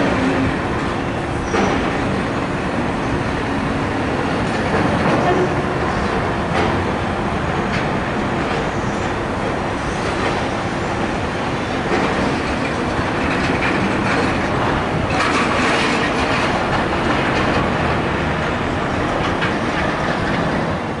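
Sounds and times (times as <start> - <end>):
train rumbling on rails: 0.0 - 21.0.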